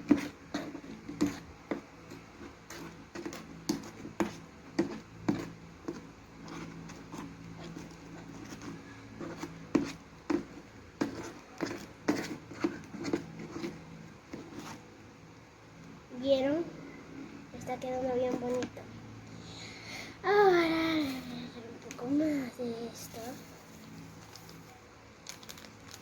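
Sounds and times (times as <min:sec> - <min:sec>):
spoon stirring slime: 0:00.0 - 0:15.0, 0:17.8 - 0:18.8.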